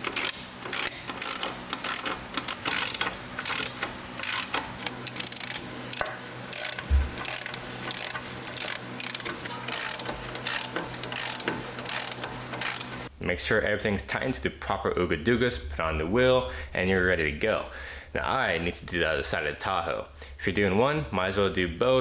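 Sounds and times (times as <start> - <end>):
ratchet wrench clicking: 0.0 - 13.0
dull thump: 6.9 - 7.2.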